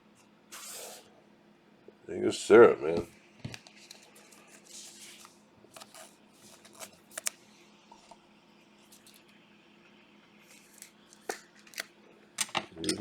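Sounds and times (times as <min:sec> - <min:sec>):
faint steady hum: 0:00.0 - 0:13.0
trading cards rustling and sliding: 0:00.5 - 0:01.1, 0:03.6 - 0:07.4, 0:10.4 - 0:11.9.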